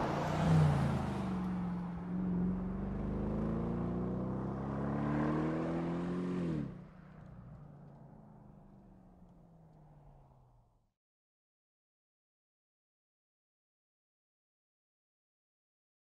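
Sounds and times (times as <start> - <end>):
car engine accelerating: 0.0 - 6.8.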